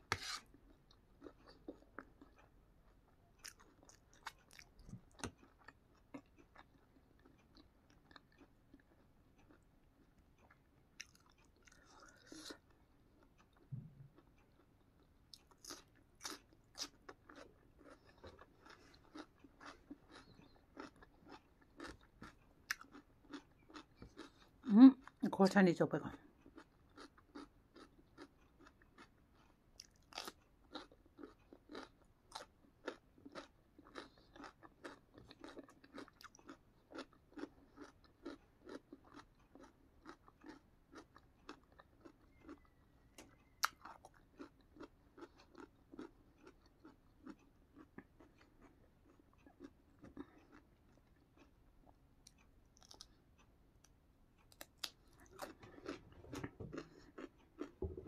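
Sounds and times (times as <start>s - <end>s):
person chewing crunchy vegetables: 0.0s - 25.2s, 26.3s - 58.0s.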